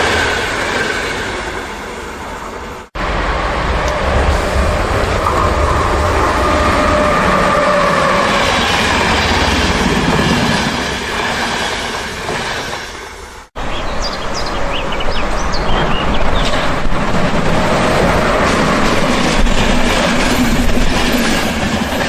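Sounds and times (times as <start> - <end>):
train rumbling on rails: 0.0 - 22.0
train wheel squeals: 3.8 - 9.7.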